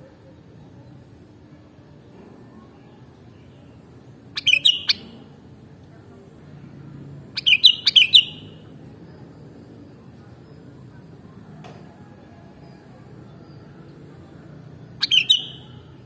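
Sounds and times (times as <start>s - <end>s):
bird chirping: 4.4s - 5.2s, 7.4s - 8.6s, 14.7s - 16.0s.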